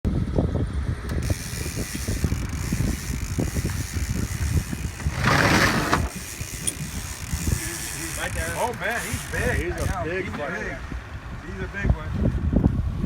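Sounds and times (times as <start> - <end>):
fishing reel ratcheting: 1.2 - 10.1.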